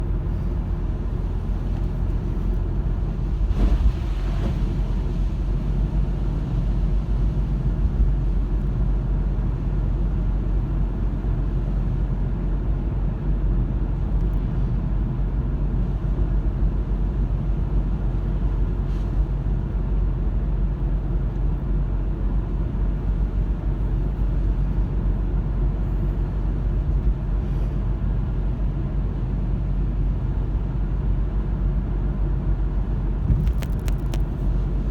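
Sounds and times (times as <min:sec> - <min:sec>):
car engine and tyre rumble: 0:00.0 - 0:34.9.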